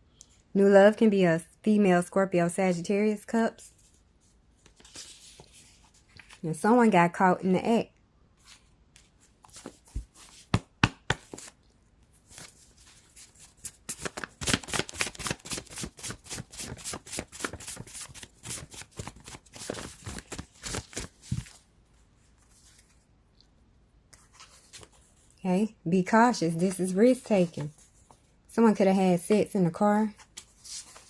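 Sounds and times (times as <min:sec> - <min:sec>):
cards being shuffled: 0:08.4 - 0:11.6, 0:12.2 - 0:21.6.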